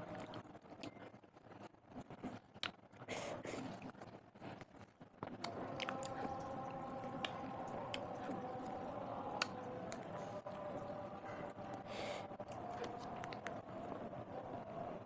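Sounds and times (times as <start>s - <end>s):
faint hum: 0.0s - 15.0s
wet chewing mouth sounds: 1.9s - 13.6s.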